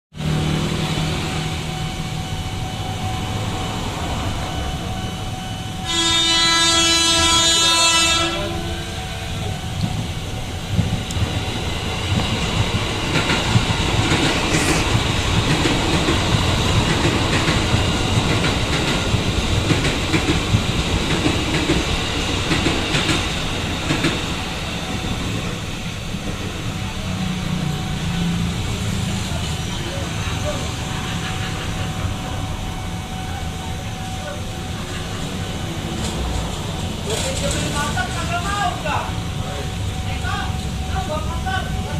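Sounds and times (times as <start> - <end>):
train rumbling past: 0.1 - 41.9
train horn blast: 4.9 - 10.1, 29.6 - 36.4
wheels clicking over rail joints: 35.8 - 38.6.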